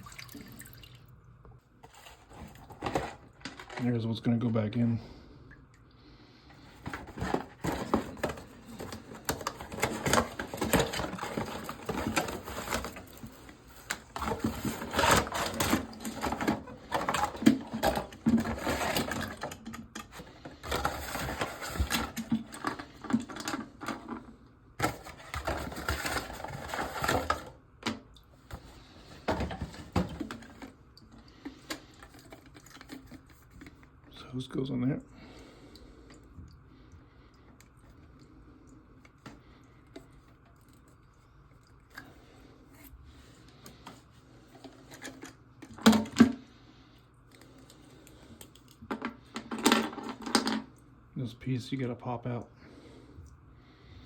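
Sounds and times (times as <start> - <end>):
plastic valve and packaging rattling: 1.8 - 4.3, 6.5 - 34.3, 41.8 - 46.6, 47.3 - 50.8.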